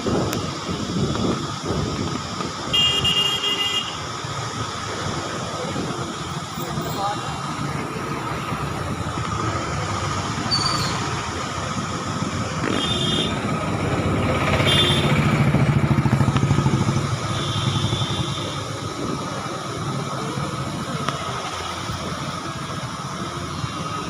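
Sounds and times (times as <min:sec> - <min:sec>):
steady background rush: 0:00.0 - 0:24.0
motorcycle passing: 0:12.4 - 0:19.6.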